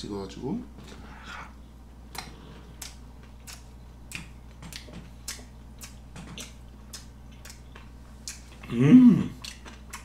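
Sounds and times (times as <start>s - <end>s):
sharp mouth clicks: 2.1s - 8.6s, 9.4s - 10.0s
wet chewing: 2.1s - 8.7s, 9.3s - 10.0s.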